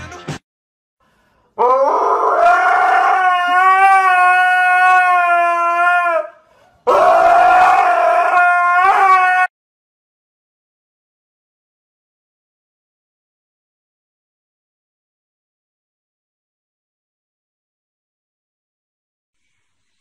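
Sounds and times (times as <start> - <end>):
dog howling: 1.6 - 9.5.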